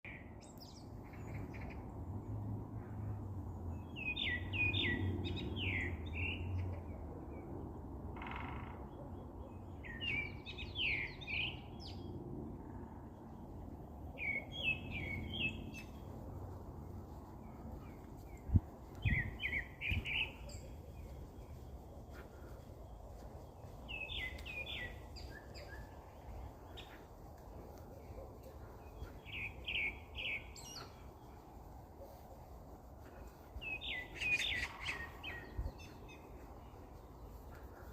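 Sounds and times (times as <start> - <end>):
songbird chirping: 0.1 - 37.9.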